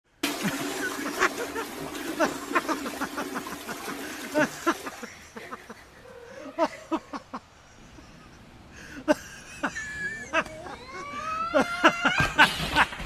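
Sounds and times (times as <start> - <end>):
toilet flushing: 0.1 - 5.8
person laughing: 0.3 - 13.0.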